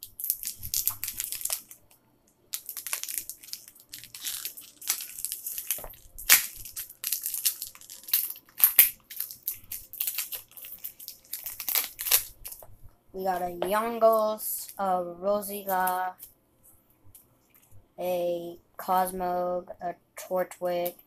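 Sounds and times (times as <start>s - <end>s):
wrapper crinkling and tearing: 0.0s - 12.7s.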